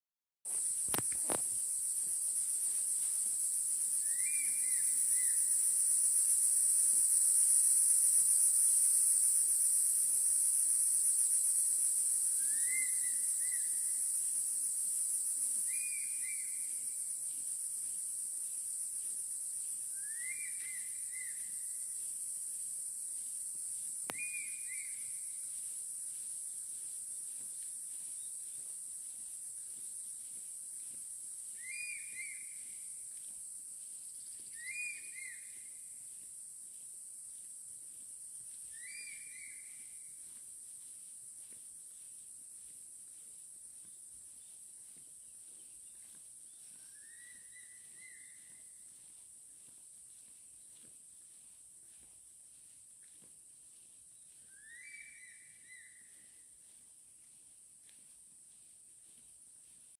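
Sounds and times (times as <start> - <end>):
insects chorus: 0.5 - 59.9
eagle whistled call: 4.0 - 5.5, 12.4 - 14.0, 15.7 - 16.8, 20.0 - 21.5, 24.1 - 25.1, 31.6 - 32.6, 34.5 - 35.7, 38.7 - 39.8, 54.5 - 56.1.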